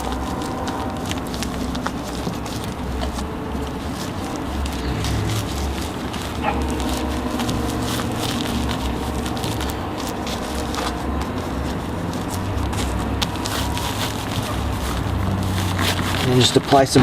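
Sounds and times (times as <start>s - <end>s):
steady low hum: 0.0s - 16.7s
insulation crinkling and rubbing: 0.0s - 17.0s.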